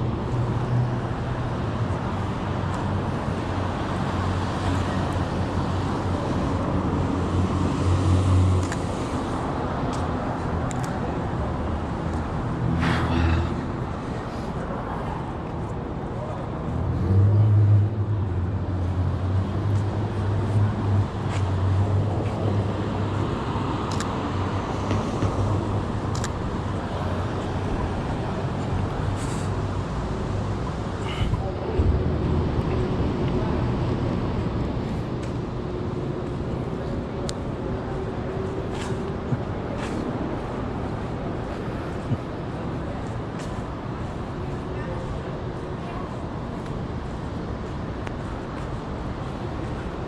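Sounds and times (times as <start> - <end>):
vehicles passing on street: 0.0 - 50.0.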